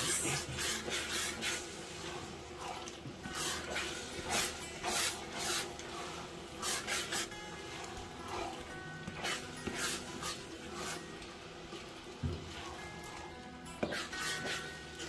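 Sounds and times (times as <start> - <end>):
stew simmering and spluttering: 0.0 - 15.0.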